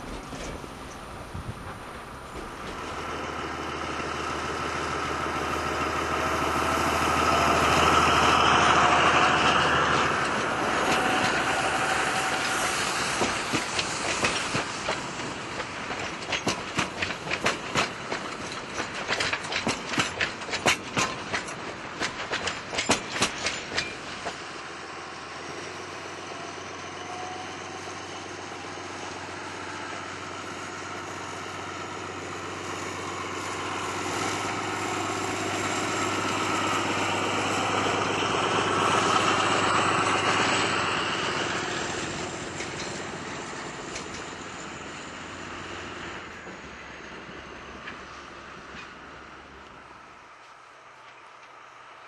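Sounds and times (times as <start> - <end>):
train rolling rumble: 0.0 - 52.0
wheel clicks over rail joints: 9.6 - 24.4.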